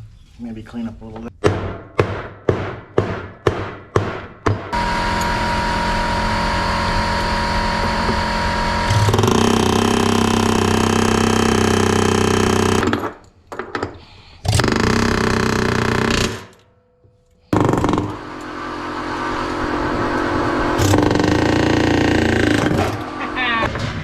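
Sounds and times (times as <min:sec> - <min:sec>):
motor-driven machine running: 0:04.7 - 0:12.9, 0:14.5 - 0:16.6, 0:17.5 - 0:23.7.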